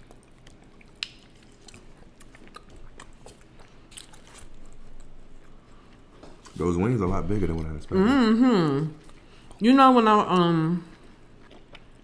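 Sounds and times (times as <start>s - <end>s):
wet mouth clicks and smacks: 0.0s - 4.2s
chewing chicken wings: 0.0s - 7.9s, 10.3s - 12.0s.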